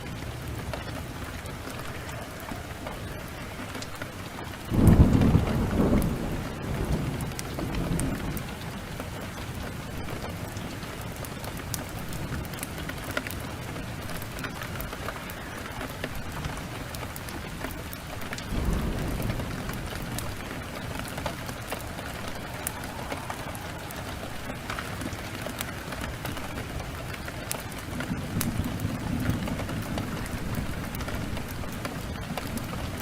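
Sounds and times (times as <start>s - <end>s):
heavy rain pouring: 0.0s - 33.0s
wood fire crackling: 0.0s - 33.0s
low rumble of thunder: 4.4s - 11.2s, 13.6s - 33.0s.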